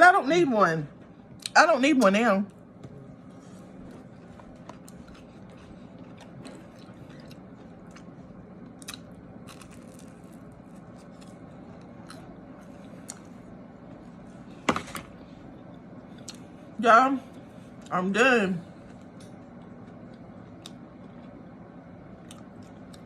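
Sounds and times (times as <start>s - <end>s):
chewing food: 3.5s - 13.5s, 18.8s - 21.5s, 22.2s - 23.0s.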